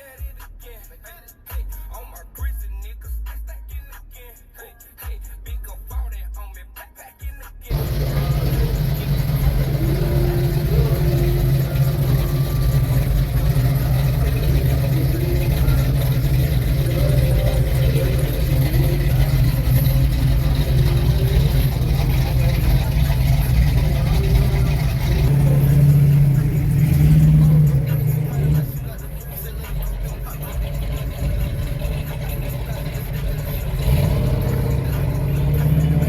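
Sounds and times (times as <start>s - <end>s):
truck engine running: 7.7s - 36.0s.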